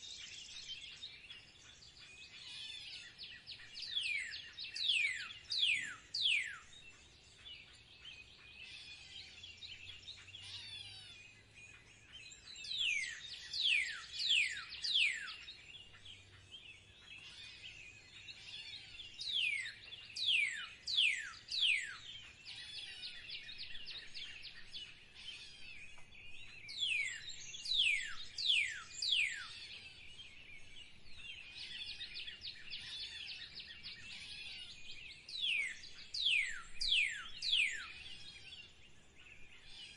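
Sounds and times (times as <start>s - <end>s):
chatter of small birds: 0.0s - 39.9s
songbird sharp downward chirps: 25.8s - 38.7s.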